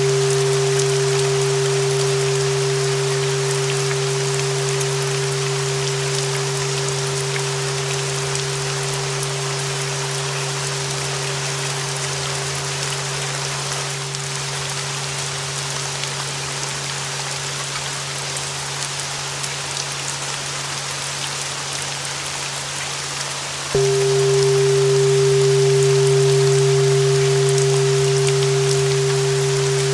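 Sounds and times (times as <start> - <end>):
low hum: 0.0 - 14.3, 23.8 - 29.9
long held bell tone: 0.0 - 15.6, 23.8 - 29.9
rain hiss: 0.0 - 29.9.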